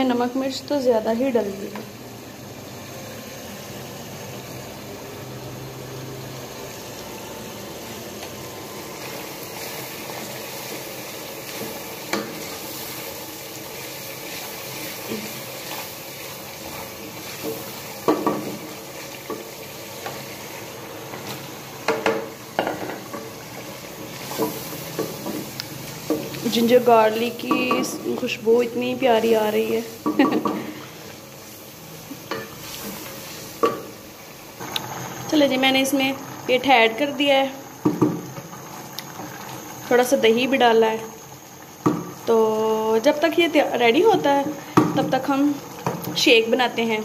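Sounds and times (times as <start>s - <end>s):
masala sizzling in oil: 0.0s - 47.0s
spoon knocking against pot: 27.4s - 28.0s.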